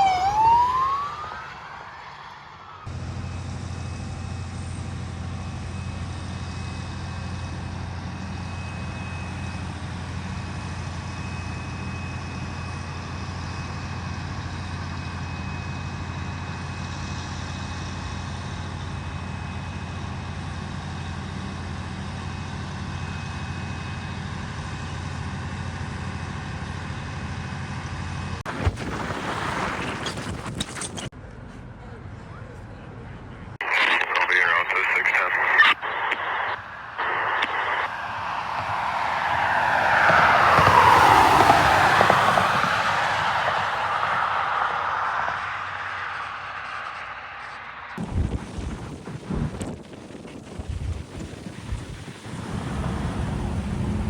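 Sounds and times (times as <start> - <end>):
burst of noise: 28.5 - 31.1, 33.6 - 49.9.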